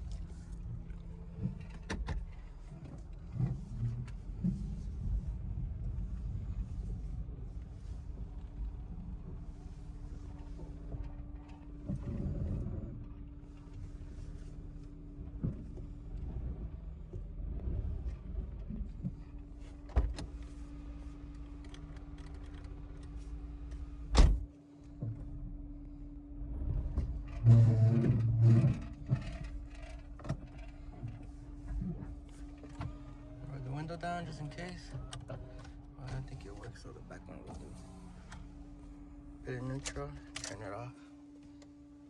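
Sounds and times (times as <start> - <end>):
car interior hum: 0.0 - 42.0
power window motor: 26.9 - 33.4.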